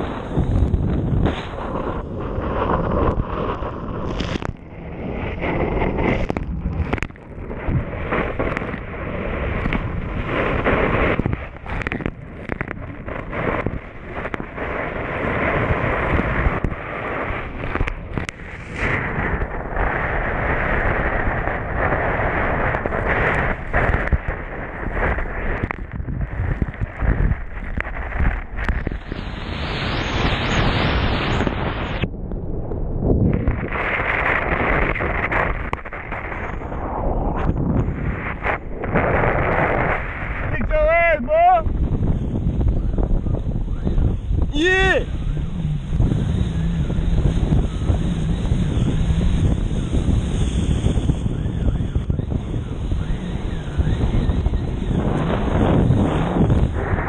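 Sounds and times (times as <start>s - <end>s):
wind buffeting microphone: 0.0s - 57.0s
jet ski engine: 42.8s - 57.0s.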